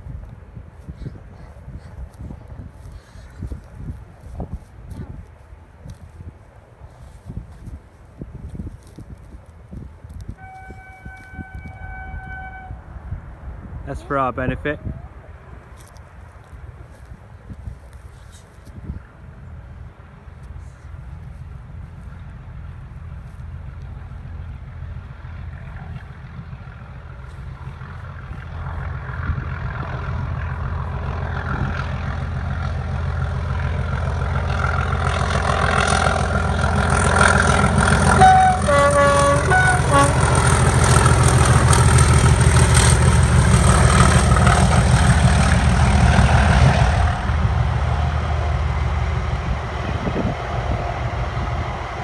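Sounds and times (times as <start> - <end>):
diesel locomotive engine: 0.0 - 52.0
wheels rumbling on rails: 0.0 - 52.0
train horn blasts: 10.4 - 13.0, 34.5 - 41.8.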